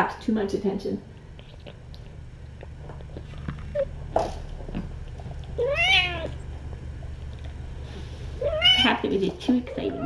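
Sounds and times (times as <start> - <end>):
steady low hum: 0.0 - 10.0
cat meowing: 5.6 - 6.4, 8.4 - 9.0.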